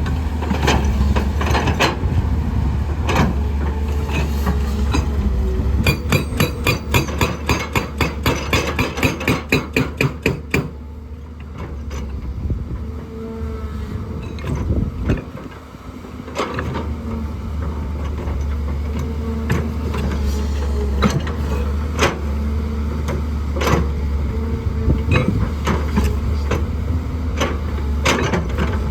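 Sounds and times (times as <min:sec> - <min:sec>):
diesel engine hum: 0:00.0 - 0:28.9
hydraulic breaker hammering rock: 0:05.8 - 0:10.8.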